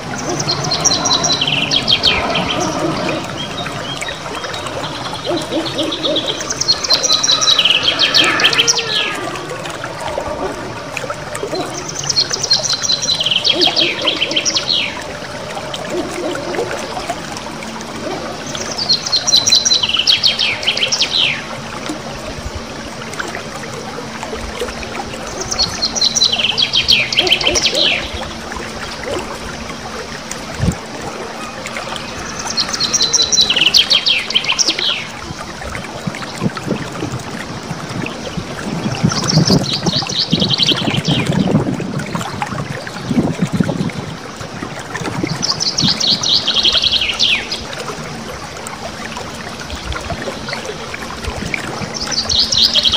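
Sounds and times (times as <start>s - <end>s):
faint trickling water: 0.0s - 52.9s
songbird trilling: 4.8s - 9.3s.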